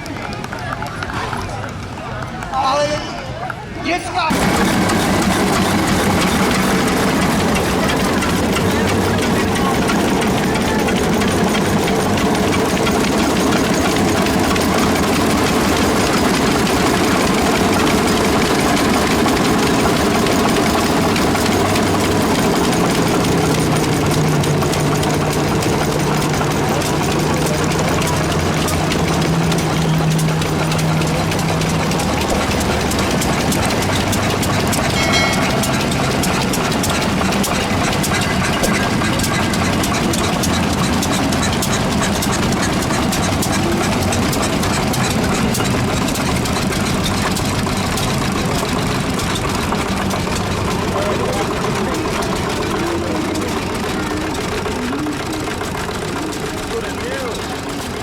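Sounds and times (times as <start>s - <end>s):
tractor engine running: 0.0s - 58.0s
low hum: 4.3s - 46.8s.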